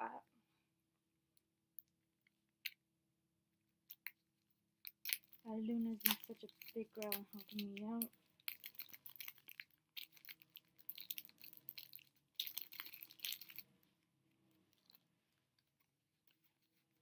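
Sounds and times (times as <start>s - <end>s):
plastic packaging crinkling: 4.9s - 13.8s.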